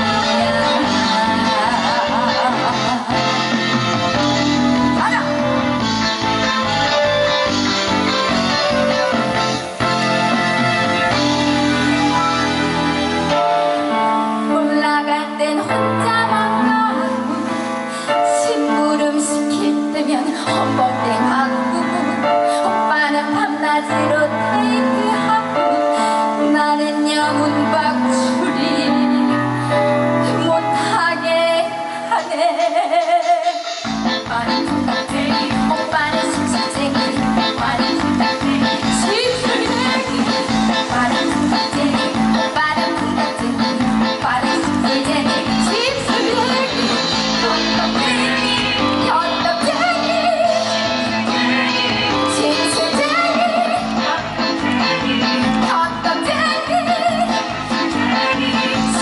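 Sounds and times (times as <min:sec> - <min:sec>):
bass line: 0:00.0 - 0:13.5, 0:33.8 - 0:59.0
live band music: 0:00.0 - 0:59.0
person singing with vibrato: 0:00.0 - 0:59.0.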